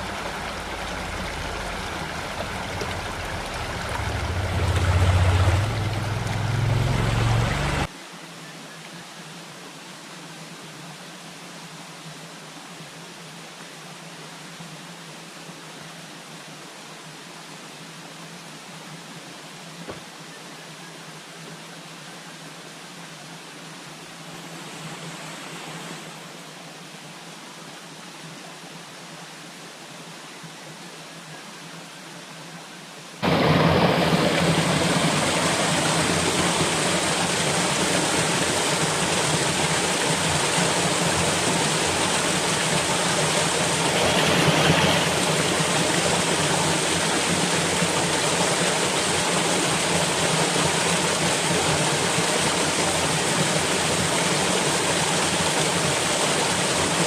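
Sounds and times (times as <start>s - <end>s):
waterfall rushing: 0.0s - 7.9s, 33.2s - 57.0s.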